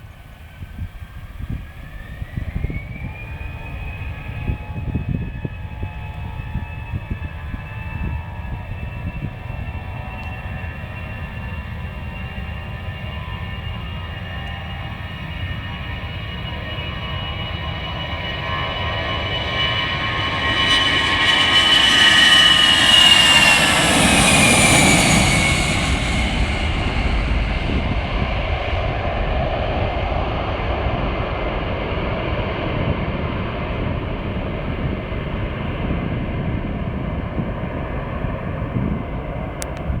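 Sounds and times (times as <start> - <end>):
jet airliner passing by: 0.0 - 40.0.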